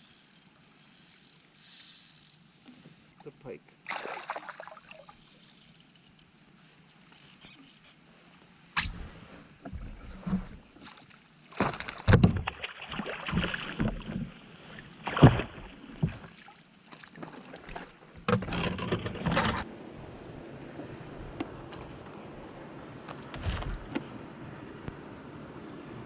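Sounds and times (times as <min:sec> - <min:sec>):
knocks and thumps on kayak: 0:09.6 - 0:10.7, 0:11.6 - 0:14.4, 0:15.0 - 0:16.3, 0:17.7 - 0:19.6, 0:23.1 - 0:24.1.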